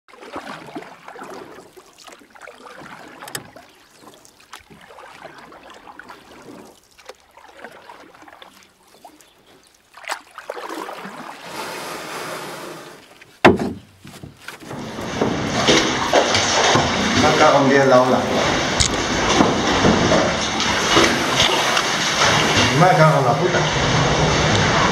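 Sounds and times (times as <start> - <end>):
paddle splashes: 0.1 - 24.9
sea water sloshing and lapping: 0.1 - 24.9
knocks on kayak: 13.4 - 17.4
wave rushing wash: 15.1 - 24.9.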